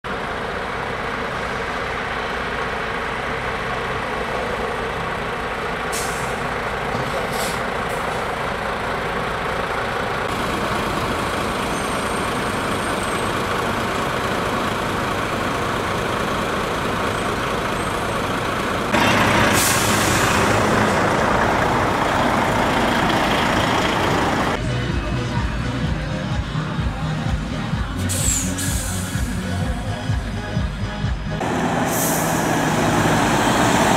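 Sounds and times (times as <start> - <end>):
heavy trucks driving past: 0.1 - 33.9
air brake hisses: 5.9 - 6.5, 7.2 - 8.3, 19.5 - 20.4, 28.0 - 29.5, 31.8 - 32.4.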